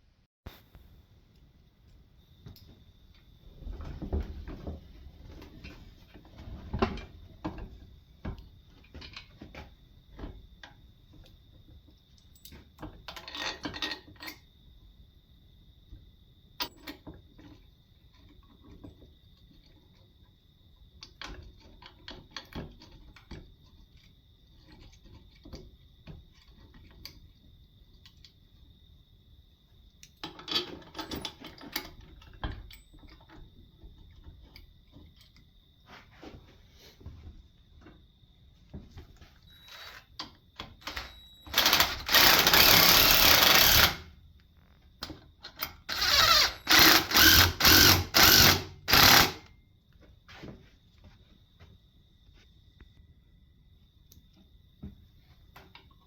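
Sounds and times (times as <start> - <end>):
power tool bursts: 39.6 - 40.1, 40.8 - 44.1, 45.9 - 49.5.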